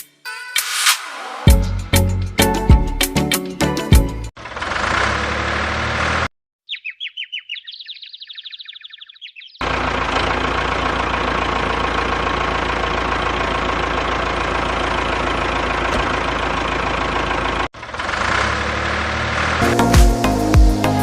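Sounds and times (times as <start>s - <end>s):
engine-like low hum: 9.6s - 21.0s.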